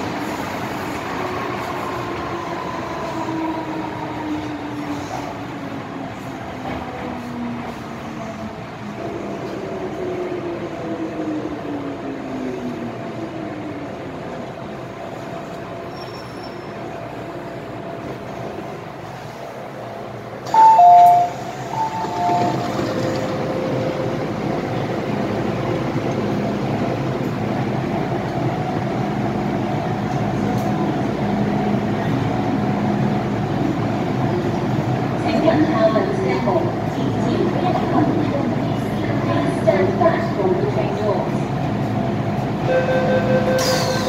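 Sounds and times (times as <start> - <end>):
two-tone door-closing chime: 43.5 - 44.0.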